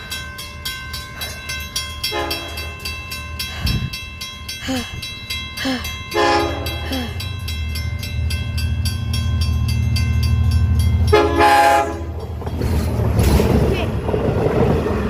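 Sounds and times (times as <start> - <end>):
crossing bell ringing: 0.0 - 13.1
train rumble: 0.0 - 15.0
train horn: 2.1 - 2.7, 6.1 - 6.8, 11.1 - 12.2.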